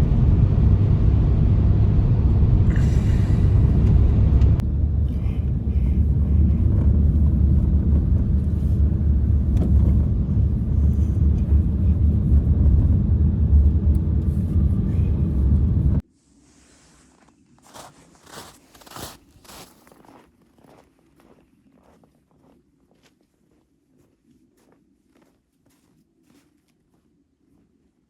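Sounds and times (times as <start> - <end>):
strong blizzard wind: 0.0 - 16.1.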